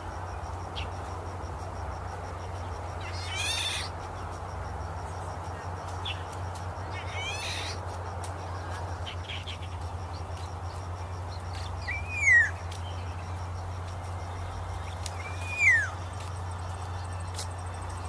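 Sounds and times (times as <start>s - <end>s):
steady background hum: 0.0s - 18.0s
bird whistled call: 11.8s - 12.6s, 15.1s - 16.0s.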